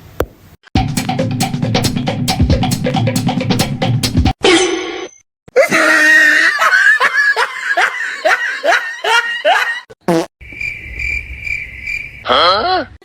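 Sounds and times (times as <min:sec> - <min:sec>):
person laughing: 0:05.5 - 0:09.9.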